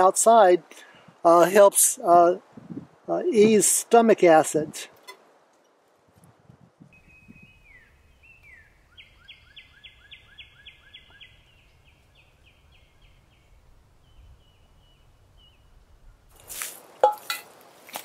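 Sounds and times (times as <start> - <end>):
songbird whistling: 6.9 - 13.2.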